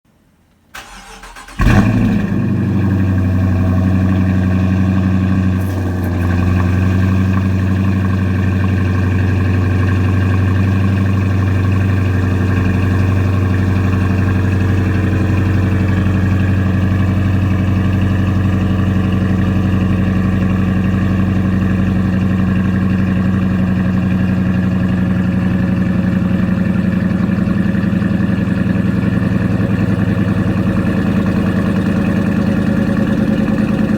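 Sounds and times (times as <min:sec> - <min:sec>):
starter motor cranking: 0:00.8 - 0:02.2, 0:05.3 - 0:07.4
car engine revving and idling: 0:00.8 - 0:33.9.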